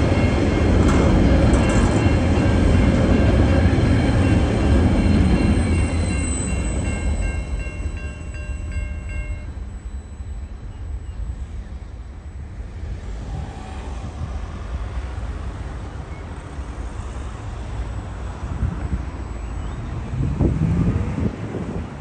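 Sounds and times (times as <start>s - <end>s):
train wheels rumbling on rails: 0.0s - 10.0s
high steady ringing: 1.7s - 12.6s.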